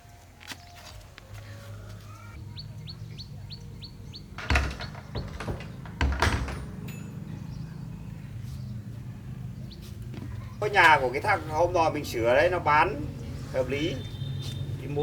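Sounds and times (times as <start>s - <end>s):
bird chirping: 2.1s - 10.8s
loud thumps: 4.0s - 7.0s.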